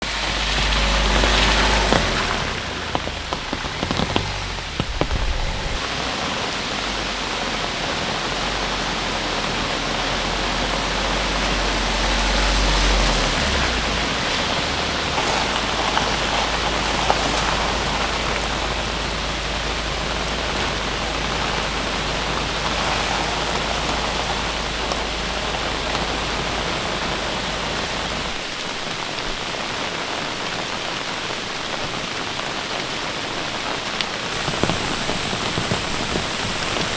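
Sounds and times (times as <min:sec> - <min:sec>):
low steady rumble: 0:00.0 - 0:06.2
rain falling: 0:00.0 - 0:36.9.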